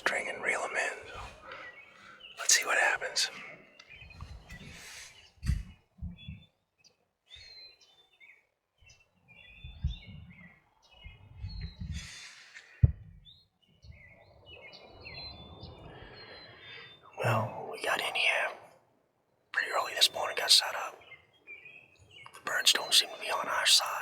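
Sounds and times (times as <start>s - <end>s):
songbirds chirping and trilling: 0.0s - 24.0s
low thumps: 5.4s - 6.4s, 11.0s - 12.1s, 12.8s - 13.3s.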